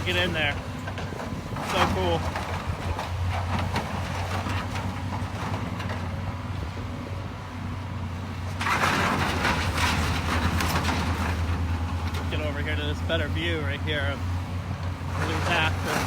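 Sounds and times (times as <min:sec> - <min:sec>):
bricks and rubble crunching: 0:00.0 - 0:06.2, 0:08.5 - 0:13.5, 0:14.9 - 0:16.0
diesel engine running: 0:00.0 - 0:16.0.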